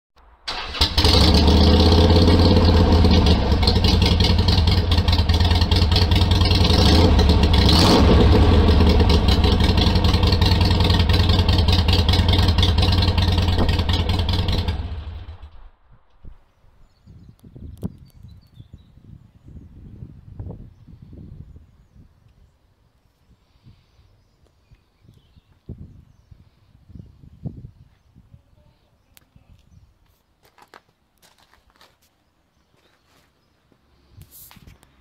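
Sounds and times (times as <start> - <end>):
motorcycle engine running: 0.8 - 15.6.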